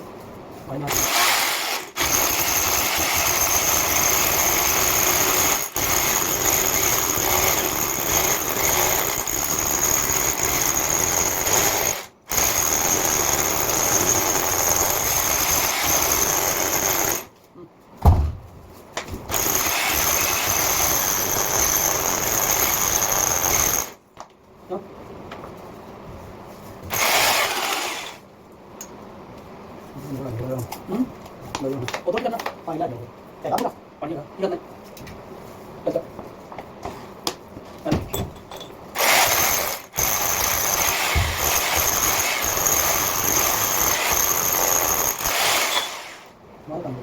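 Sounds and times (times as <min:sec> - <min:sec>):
electric drill grinding into wall: 0:00.9 - 0:17.3, 0:19.3 - 0:24.0, 0:26.9 - 0:28.2, 0:39.0 - 0:46.4.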